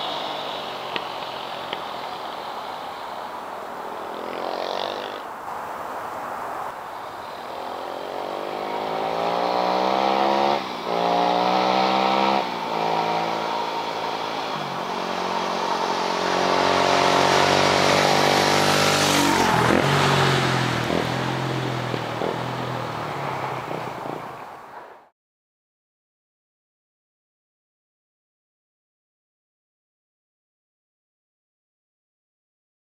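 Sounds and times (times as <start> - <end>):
motorcycle engine accelerating: 7.5 - 24.8.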